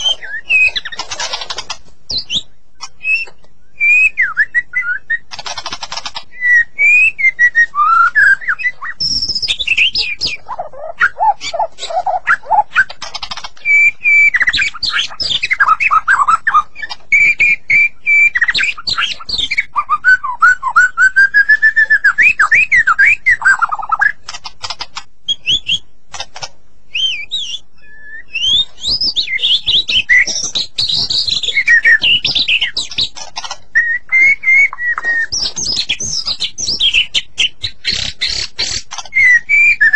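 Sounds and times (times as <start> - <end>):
bird singing whistles and chirps: 0.0 - 1.4, 2.1 - 5.3, 6.2 - 24.2, 25.3 - 25.9, 26.9 - 39.9.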